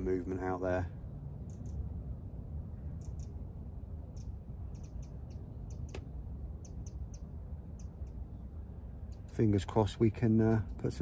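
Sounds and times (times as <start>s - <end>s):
low steady rumble: 0.0s - 11.0s
small bird chirping: 1.4s - 1.9s, 2.7s - 9.6s.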